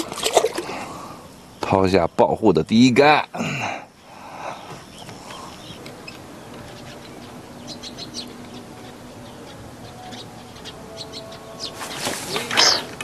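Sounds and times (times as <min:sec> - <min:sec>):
faint steady hum: 0:00.0 - 0:11.7
small birds chirping: 0:00.6 - 0:13.0.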